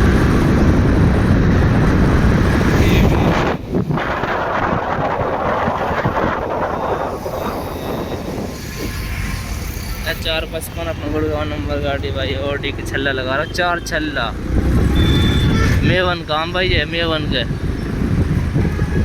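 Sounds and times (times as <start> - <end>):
wind rush: 0.0 - 12.8, 14.4 - 19.0
motorcycle road noise: 0.0 - 19.0.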